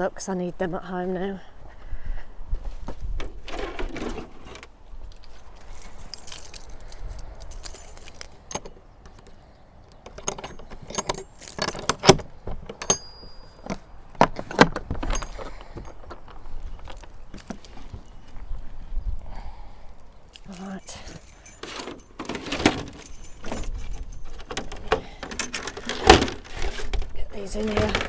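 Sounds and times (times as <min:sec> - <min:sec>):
small hard objects jangling: 0:05.1 - 0:08.6, 0:10.3 - 0:13.8, 0:15.0 - 0:17.3, 0:20.4 - 0:28.0.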